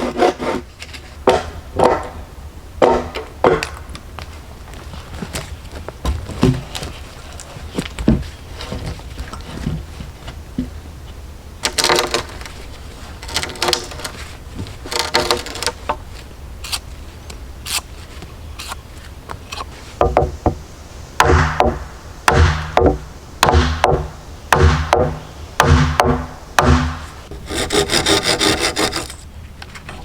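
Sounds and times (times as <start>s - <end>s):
wood and tools knocking: 1.3s - 2.2s, 11.6s - 12.6s, 13.2s - 16.0s, 19.5s - 20.6s
harsh rasping: 27.2s - 29.2s.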